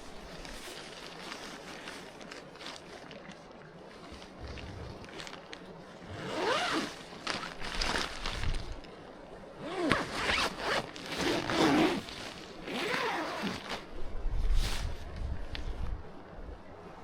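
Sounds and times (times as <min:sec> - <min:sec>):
zipper being pulled: 0:06.1 - 0:08.0, 0:09.6 - 0:13.8.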